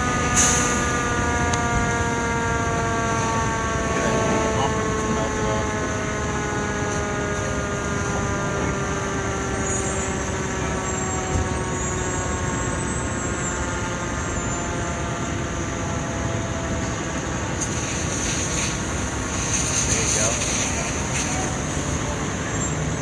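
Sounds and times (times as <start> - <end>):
vehicle engine hum: 0.0 - 23.0
constant rushing noise: 16.8 - 23.0.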